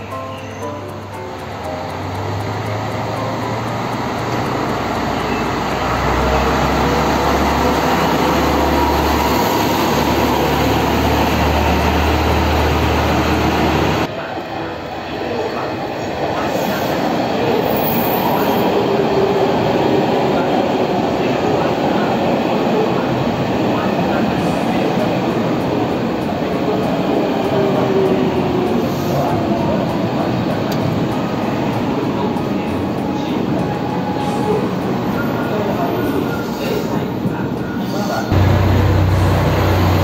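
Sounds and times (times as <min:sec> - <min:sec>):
diesel railcar engine humming: 0:00.0 - 0:15.7, 0:25.2 - 0:40.0
electric train rolling past: 0:00.0 - 0:40.0.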